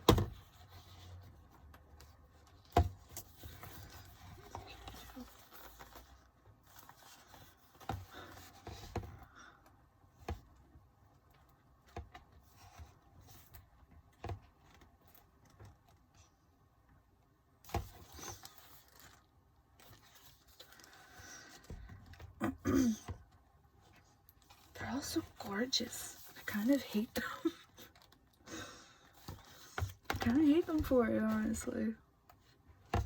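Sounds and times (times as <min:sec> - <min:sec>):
paper cards tapping and rustling: 0:29.1 - 0:31.7.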